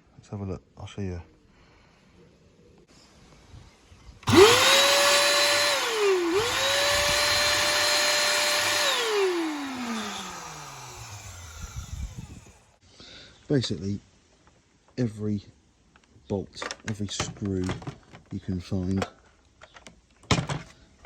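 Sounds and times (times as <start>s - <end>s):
vacuum cleaner motor whine: 4.2s - 12.8s.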